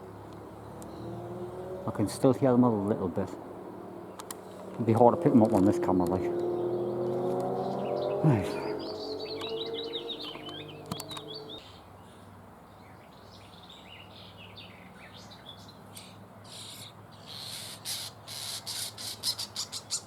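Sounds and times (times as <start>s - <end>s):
bird chicks rasping calls: 6.1s - 11.8s, 14.6s - 20.0s
faint bird chirps: 6.5s - 20.0s.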